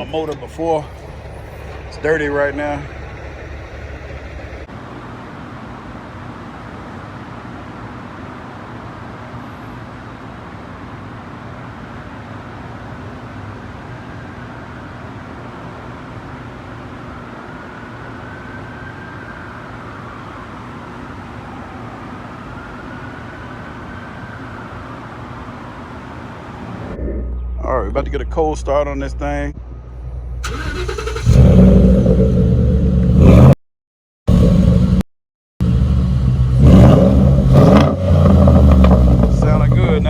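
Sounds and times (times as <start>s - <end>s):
faint whine: 0.0s - 4.7s, 26.6s - 30.6s
vehicle engine running: 0.0s - 4.7s, 35.6s - 40.0s.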